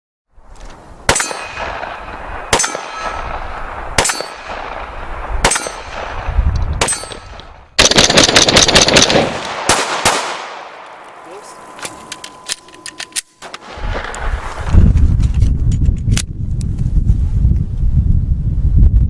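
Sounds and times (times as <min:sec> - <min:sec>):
rifle shots with ringing tail: 0:01.1 - 0:14.2.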